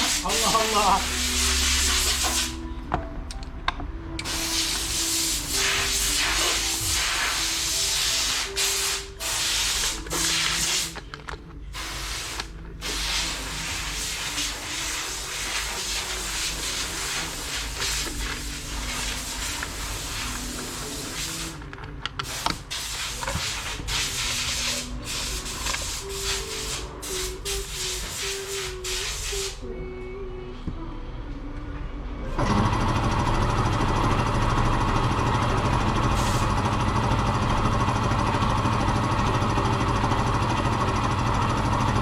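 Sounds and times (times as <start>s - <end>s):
compressed air hissing: 0.0s - 2.6s, 4.2s - 11.0s, 11.7s - 21.6s, 22.2s - 29.6s, 36.1s - 36.5s.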